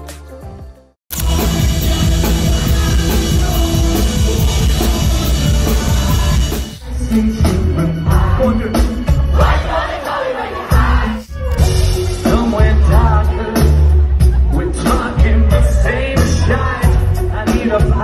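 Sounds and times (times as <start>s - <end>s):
drum kit: 0.0s - 9.8s, 10.7s - 18.0s
rock band playing live: 0.0s - 9.8s, 10.8s - 18.0s
person singing: 1.1s - 9.6s.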